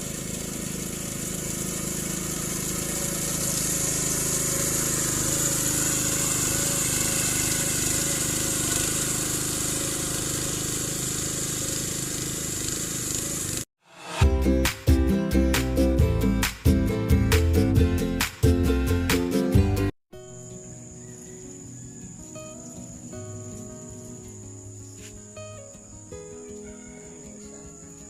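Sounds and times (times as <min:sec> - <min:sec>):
small engine running: 0:00.0 - 0:14.2
high hiss: 0:01.2 - 0:14.3.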